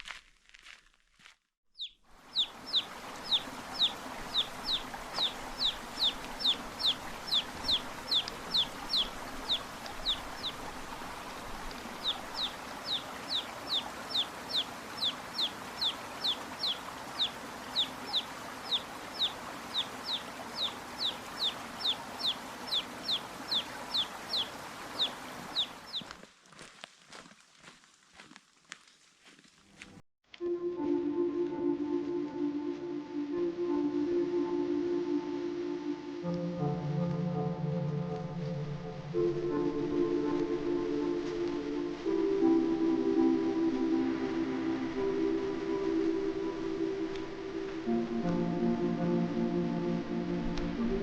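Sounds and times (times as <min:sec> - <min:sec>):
bird calling with high slurred notes: 0:01.8 - 0:10.6.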